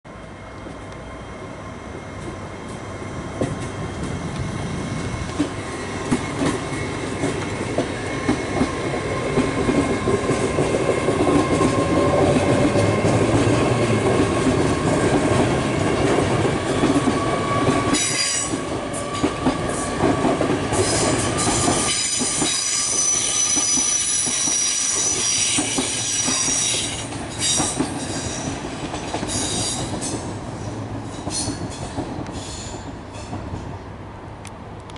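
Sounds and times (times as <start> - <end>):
train running past: 0.1 - 34.9
high-pitched wheel squeal: 21.0 - 27.6.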